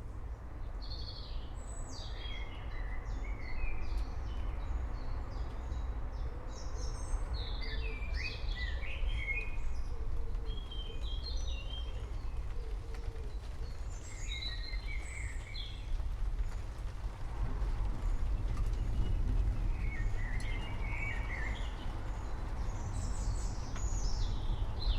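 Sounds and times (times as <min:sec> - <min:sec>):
steady low rumbling noise: 0:00.0 - 0:24.9
songbirds chirping and trilling: 0:00.2 - 0:16.9, 0:17.8 - 0:24.9.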